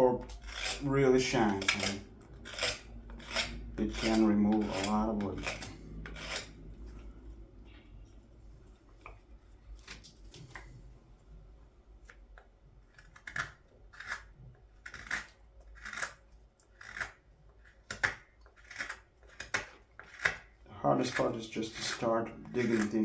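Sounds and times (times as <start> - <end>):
blade scraping wood: 0.0 - 7.2, 12.9 - 23.0.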